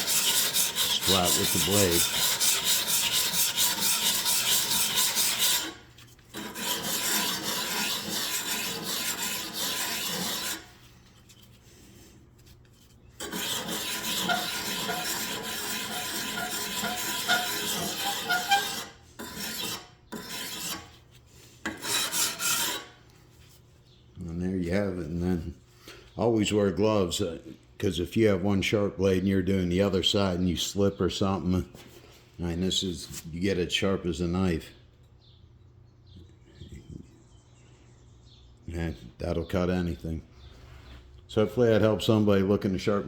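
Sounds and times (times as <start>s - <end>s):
file scraping steel blade: 0.0s - 11.6s, 12.4s - 23.0s.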